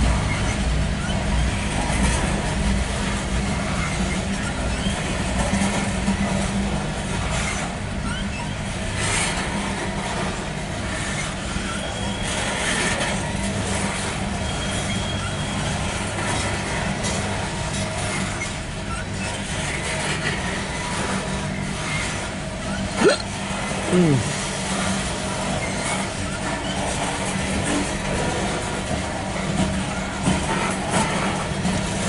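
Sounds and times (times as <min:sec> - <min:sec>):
freight train wheels rumbling: 0:00.0 - 0:32.0
faint short squeaks: 0:08.0 - 0:08.6.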